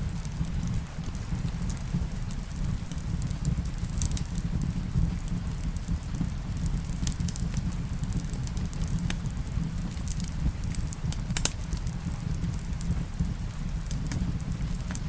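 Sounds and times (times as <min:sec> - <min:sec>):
rain on a roof: 0:00.0 - 0:15.0
wood fire crackling and popping: 0:00.0 - 0:15.0.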